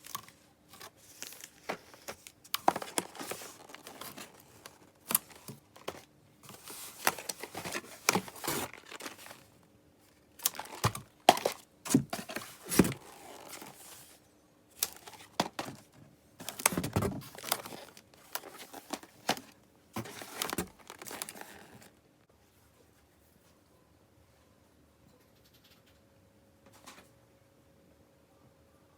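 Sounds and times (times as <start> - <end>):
packaging crinkling and tearing: 0.0 - 9.6, 10.3 - 14.1, 14.8 - 22.0.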